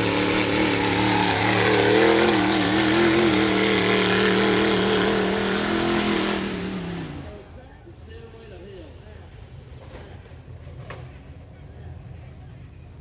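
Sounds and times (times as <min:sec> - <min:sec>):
buggy engine revving: 0:00.0 - 0:07.7.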